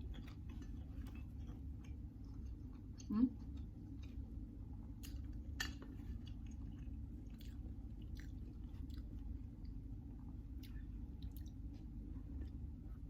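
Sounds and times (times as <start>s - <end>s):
low steady hum: 0.0s - 13.0s
person chewing food: 0.0s - 13.0s.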